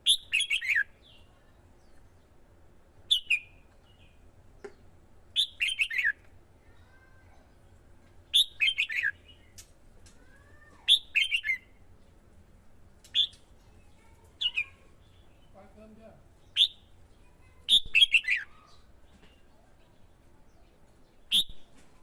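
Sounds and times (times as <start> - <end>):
bird singing quick phrases: 0.0 - 2.1, 3.1 - 4.2, 5.4 - 6.2, 8.3 - 9.6, 10.9 - 11.7, 13.1 - 19.5, 20.5 - 21.8.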